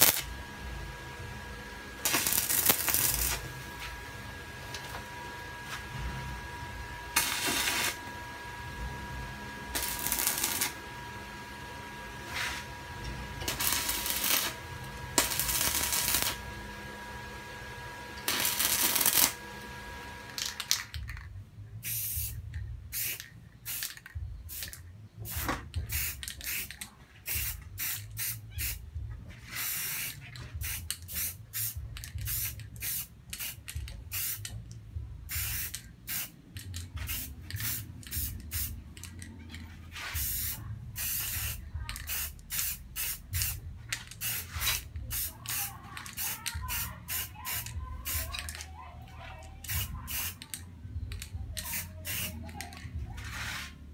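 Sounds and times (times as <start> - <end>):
stick welder crackling: 0.0 - 0.4, 2.0 - 4.0, 7.1 - 8.1, 9.7 - 11.0, 13.4 - 16.6, 18.1 - 20.8
spray paint can hissing: 2.0 - 3.4, 9.7 - 10.8, 15.2 - 16.4, 21.8 - 28.8, 29.4 - 34.6, 35.3 - 39.2, 40.0 - 48.6, 49.6 - 50.6, 51.5 - 53.7.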